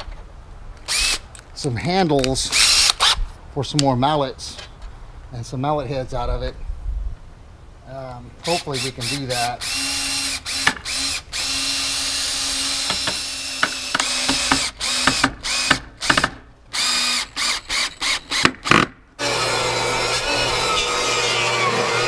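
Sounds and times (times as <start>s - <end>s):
electric drill driving screws: 0.8s - 1.2s, 2.5s - 3.2s, 8.4s - 22.0s.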